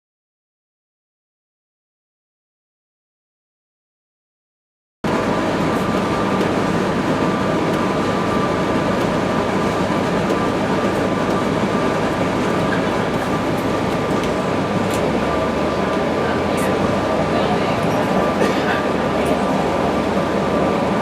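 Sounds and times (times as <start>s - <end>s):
bus running noise: 5.0s - 21.0s.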